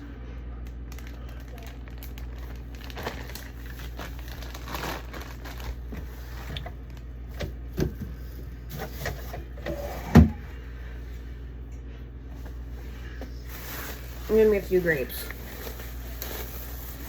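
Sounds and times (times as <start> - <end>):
steady low hum: 0.0 - 17.0
fruit handling knocks and rustles: 4.4 - 10.6.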